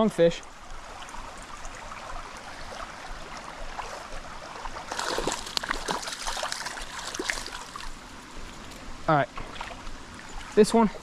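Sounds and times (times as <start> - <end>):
creek flowing: 0.0 - 11.0
fish splashing in water: 1.7 - 8.0.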